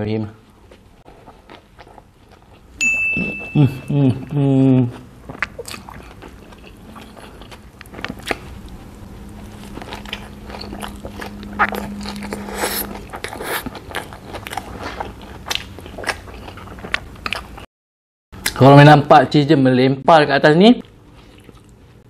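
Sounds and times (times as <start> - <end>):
biting and chewing: 0.7 - 2.8, 4.9 - 17.6.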